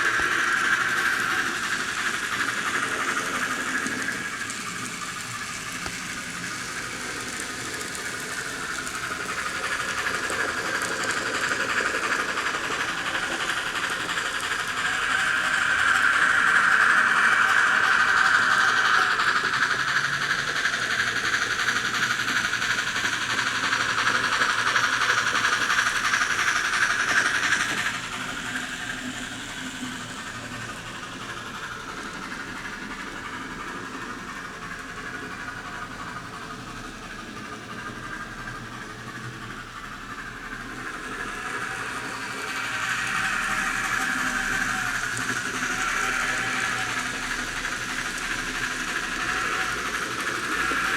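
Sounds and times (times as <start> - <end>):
model train running on track: 0.0 - 50.9.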